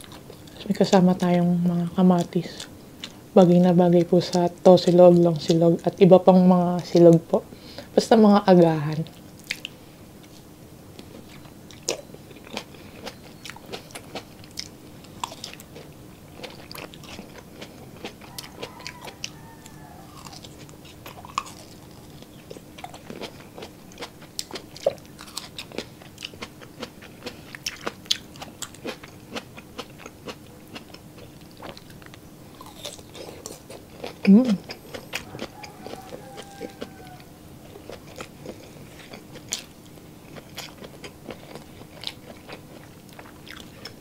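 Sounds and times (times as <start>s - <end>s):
wet chewing and mouth clicks: 9.1s - 10.4s, 11.0s - 44.0s.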